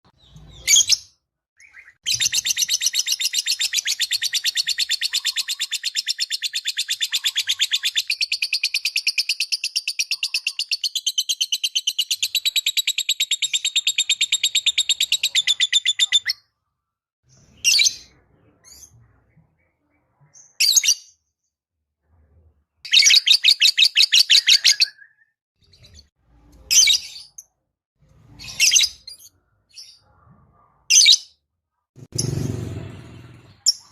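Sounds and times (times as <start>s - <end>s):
lovebird chattering trill: 2.1s - 16.4s.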